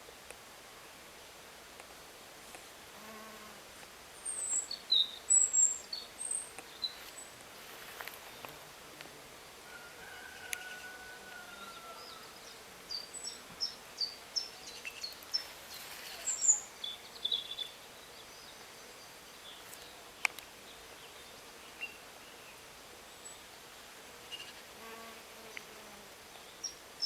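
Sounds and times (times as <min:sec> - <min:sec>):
faint outdoor hiss: 0:00.0 - 0:27.0
small bird chirping: 0:12.9 - 0:17.8.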